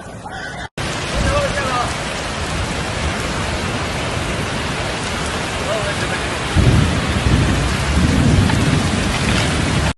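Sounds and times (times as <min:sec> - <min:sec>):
heavy rain falling: 0:00.0 - 0:09.9
deep rumble: 0:06.3 - 0:09.9.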